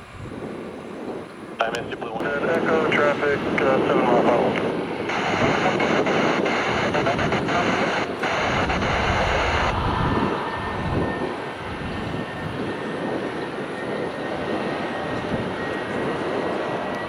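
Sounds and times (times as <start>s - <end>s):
jet engine rush with high whine: 0.0s - 17.0s.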